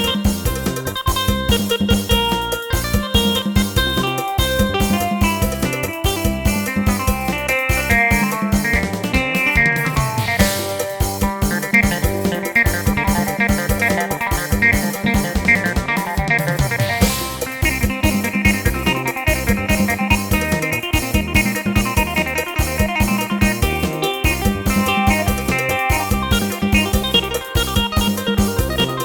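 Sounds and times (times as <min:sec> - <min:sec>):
plucked-string keyboard melody: 0:00.0 - 0:29.0
steady drum rhythm: 0:00.0 - 0:29.0
cymbal crash: 0:09.5 - 0:15.4, 0:16.8 - 0:22.8.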